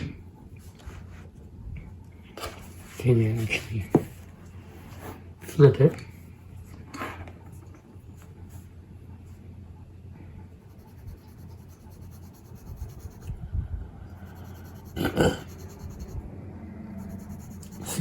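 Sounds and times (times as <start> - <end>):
low background hum: 0.0 - 18.0
pencil scratching on paper: 10.5 - 13.4, 14.1 - 16.2, 16.8 - 18.0.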